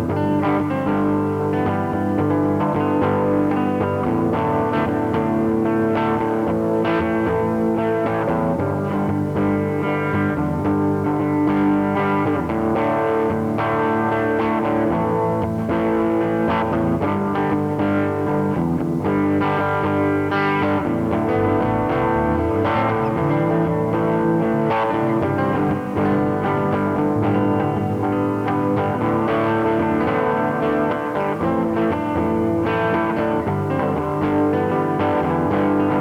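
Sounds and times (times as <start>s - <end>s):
guitar instrumental music: 0.0s - 36.0s.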